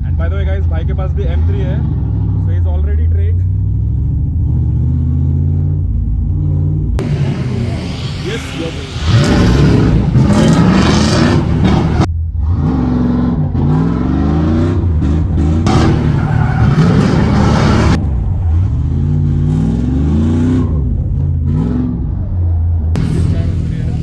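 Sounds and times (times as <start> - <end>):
tyre screech: 7.0 - 12.1, 15.7 - 18.0
car engine revving: 7.0 - 22.0, 23.0 - 24.0.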